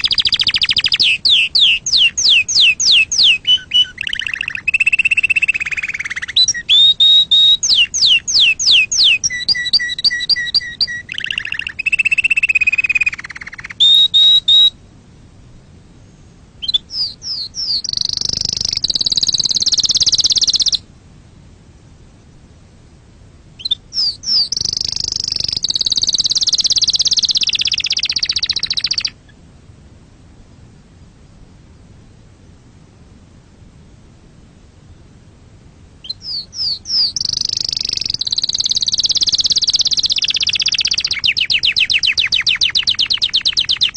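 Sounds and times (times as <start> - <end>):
canary singing trills: 0.0 - 15.0, 16.0 - 20.9, 23.6 - 29.4, 36.0 - 43.9.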